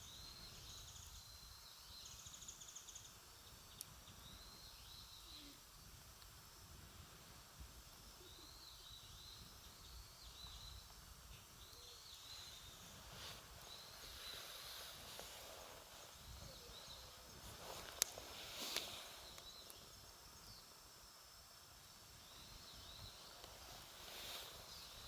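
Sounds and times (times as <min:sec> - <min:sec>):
small birds chirping: 0:00.0 - 0:06.5, 0:07.7 - 0:25.0
campfire wood popping: 0:16.1 - 0:20.0.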